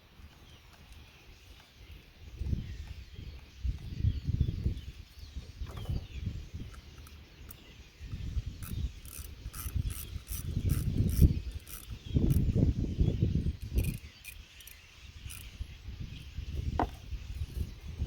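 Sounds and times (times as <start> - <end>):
ratchet wrench clicking: 8.6 - 12.6, 13.6 - 15.6
tool knocks and rubbing: 16.8 - 17.0.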